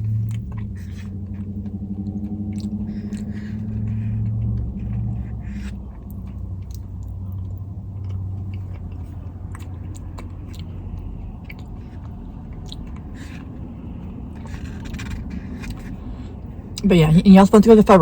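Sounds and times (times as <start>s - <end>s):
person chewing food: 0.0s - 16.8s
steady low hum: 0.0s - 18.0s.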